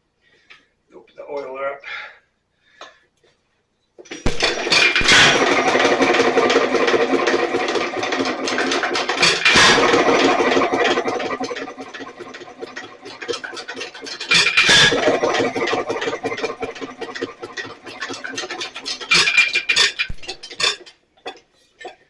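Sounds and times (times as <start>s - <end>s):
engine turning over: 4.1s - 20.8s.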